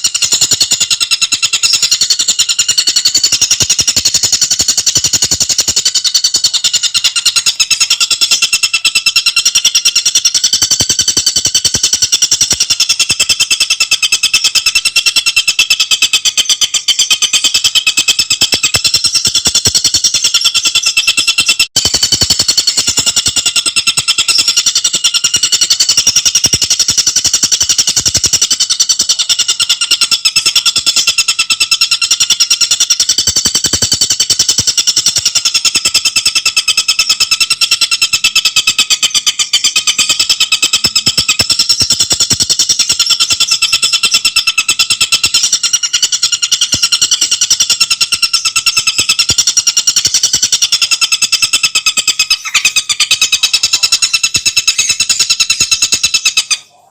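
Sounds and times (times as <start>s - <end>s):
bird singing fast rattling trill: 0.0s - 56.9s.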